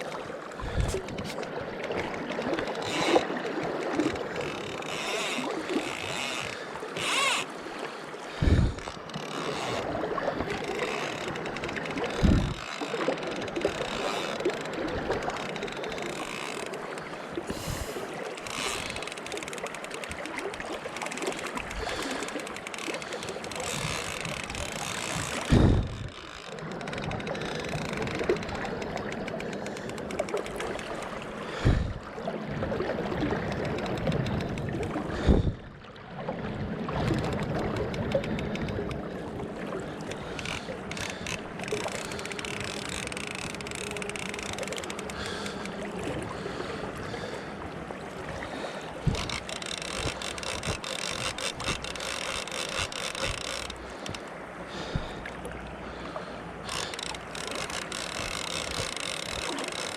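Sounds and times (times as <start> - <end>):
river water rushing: 0.0 - 35.2, 36.0 - 59.9
short low thumps: 8.4 - 8.8, 25.5 - 26.1.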